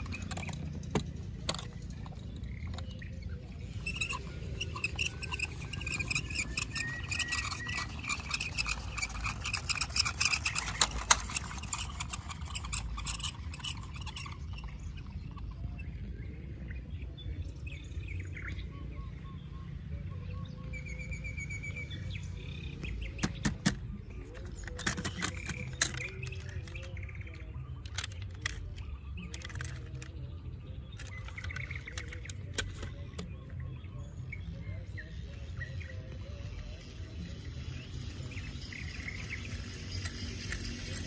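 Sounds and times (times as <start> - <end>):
sharp clicks and knocks: 0.0 - 15.5, 22.8 - 33.6
birds chirping: 0.0 - 41.0.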